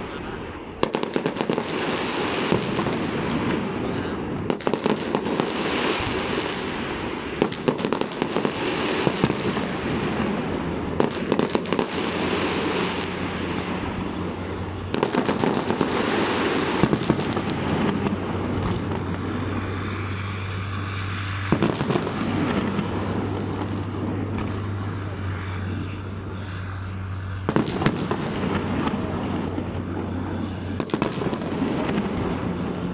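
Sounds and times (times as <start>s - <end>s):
continuous din: 0.0s - 32.9s
fireworks bangs and crackling: 0.0s - 32.9s
steady low hum: 8.0s - 32.9s.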